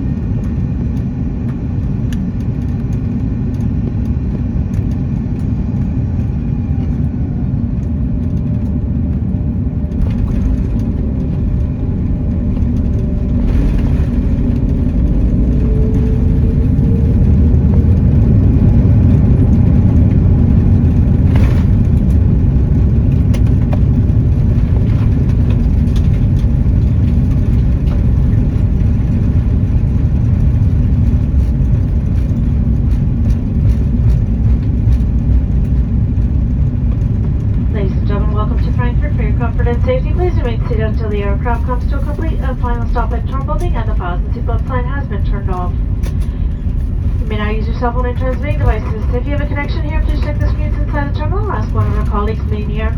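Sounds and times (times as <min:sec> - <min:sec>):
airplane cabin rumble: 0:00.0 - 0:52.9.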